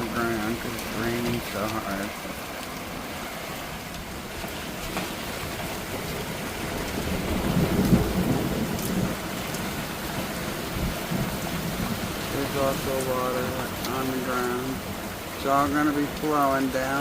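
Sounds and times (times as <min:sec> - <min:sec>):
heavy rain pouring: 0:00.0 - 0:17.0
low roll of thunder: 0:04.0 - 0:16.2.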